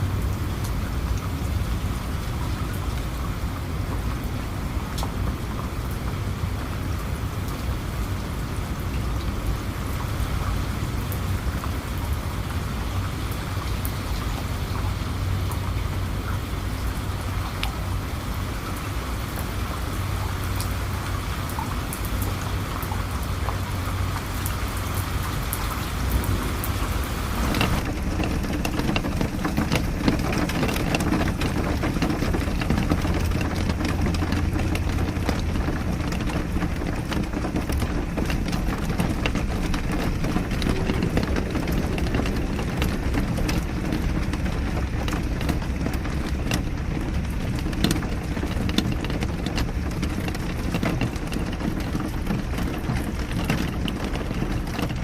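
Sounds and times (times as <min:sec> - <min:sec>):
dull deep rain patter: 0:00.0 - 0:55.0
rain drops tapping: 0:00.0 - 0:55.0.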